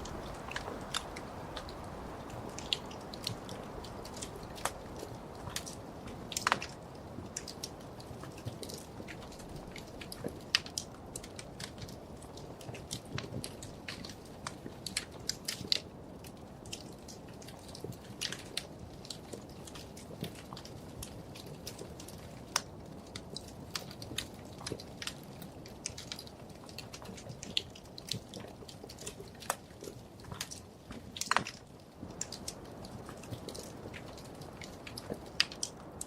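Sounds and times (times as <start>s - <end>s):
low steady rumble: 0.0s - 5.4s
wood fire crackling: 0.0s - 36.0s.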